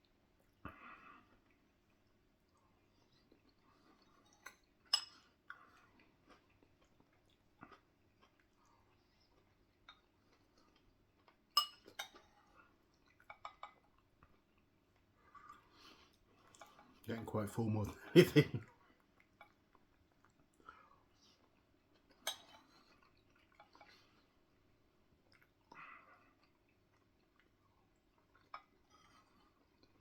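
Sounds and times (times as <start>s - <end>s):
faint chewing: 0.0s - 17.1s, 18.6s - 30.0s
cutlery clinking against dish: 11.6s - 12.2s.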